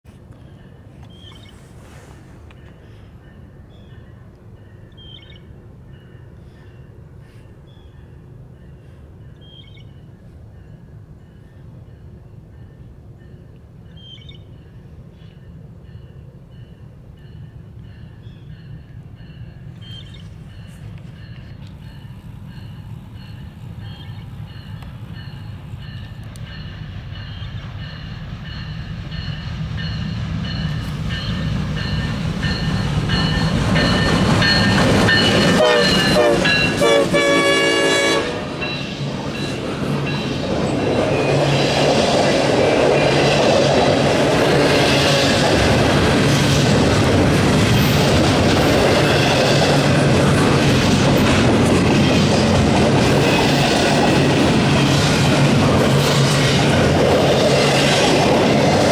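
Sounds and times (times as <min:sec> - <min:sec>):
diesel locomotive engines: 0:00.1 - 0:58.9
train horn: 0:35.1 - 0:38.9.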